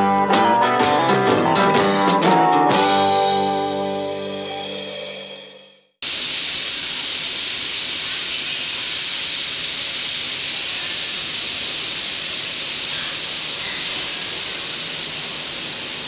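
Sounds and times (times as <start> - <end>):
background music: 0.0 - 5.8.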